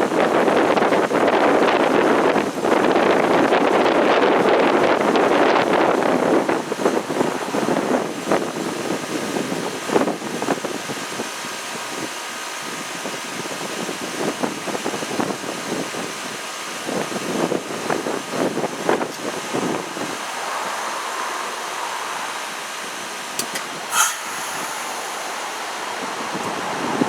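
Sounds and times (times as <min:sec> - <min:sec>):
wind buffeting microphone: 0:00.0 - 0:11.3, 0:12.9 - 0:27.0
heat pump humming and hissing: 0:22.4 - 0:27.0.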